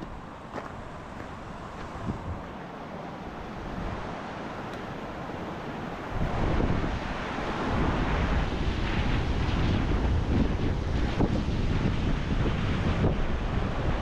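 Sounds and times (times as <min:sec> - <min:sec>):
wind buffeting microphone: 0:00.0 - 0:02.6, 0:03.2 - 0:14.0
steady rushing background: 0:00.0 - 0:14.0.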